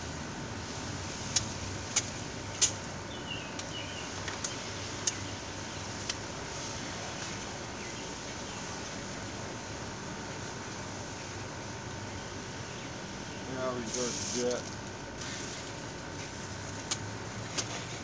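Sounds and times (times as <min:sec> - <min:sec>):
hose spray hissing: 0:00.0 - 0:18.0
sharp clicks: 0:04.3 - 0:05.2.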